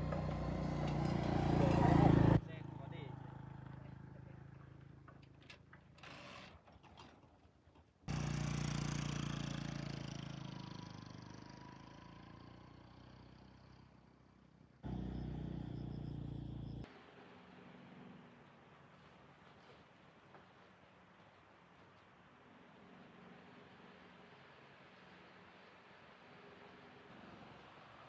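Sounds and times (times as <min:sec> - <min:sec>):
light clicks and clatter: 0:00.0 - 0:02.4
engine running: 0:00.0 - 0:05.3, 0:08.1 - 0:18.6.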